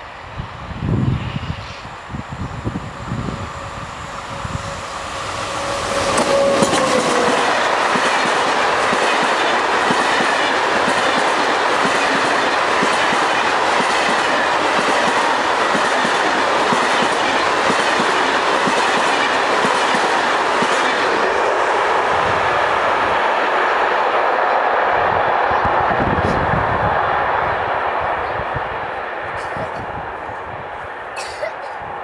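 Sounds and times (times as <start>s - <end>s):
locomotive passing with falling tone: 1.5s - 24.0s
train wheels clickety-clack: 5.6s - 21.4s.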